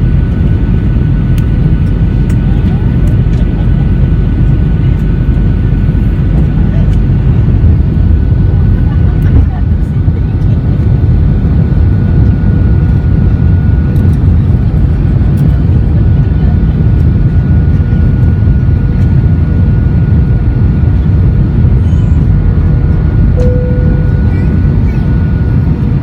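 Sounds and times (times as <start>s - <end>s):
jet engine cabin rumble: 0.0s - 26.0s
faint constant whine: 22.6s - 26.0s.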